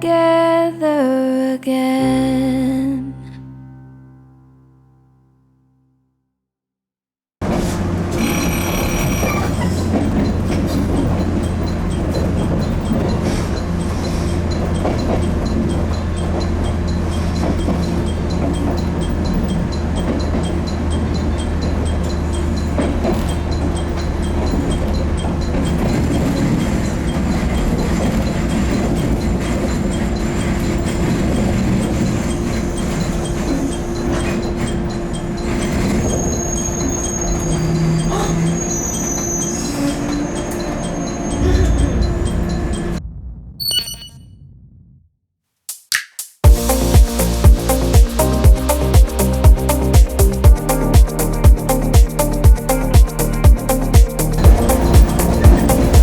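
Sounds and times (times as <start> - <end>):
train rumbling: 7.4 - 43.2, 46.5 - 56.0
high ringing: 43.6 - 44.3, 46.4 - 56.0.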